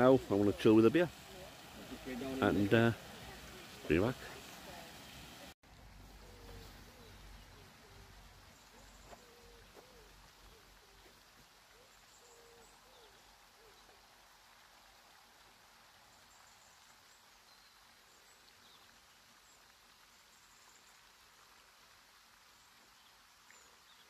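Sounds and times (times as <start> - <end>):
faint hiss: 0.0 - 24.0
bird cooing: 6.1 - 14.0.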